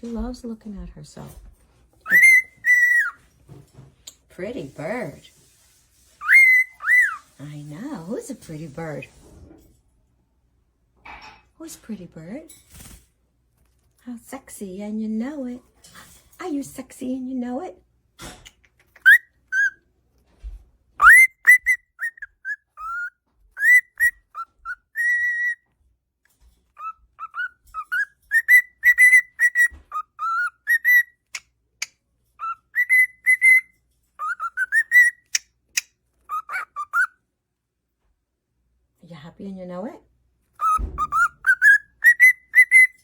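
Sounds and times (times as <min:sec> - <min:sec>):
cockatiel whistling: 0:02.0 - 0:03.2, 0:06.2 - 0:07.3, 0:19.0 - 0:19.8, 0:21.0 - 0:25.6, 0:26.8 - 0:31.4, 0:32.4 - 0:35.4, 0:36.3 - 0:37.1, 0:40.6 - 0:43.0.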